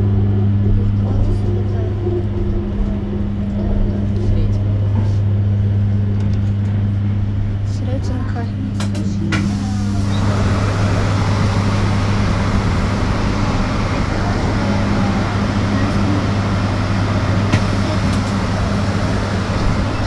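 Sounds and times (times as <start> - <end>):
road and tyre noise: 9.3 - 20.0.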